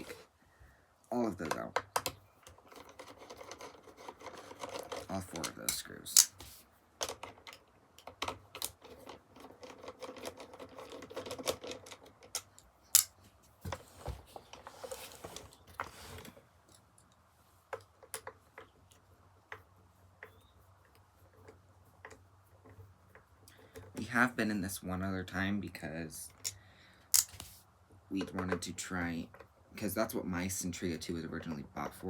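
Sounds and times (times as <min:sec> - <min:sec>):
screwdriver clicks and rattles: 0:07.0 - 0:13.2.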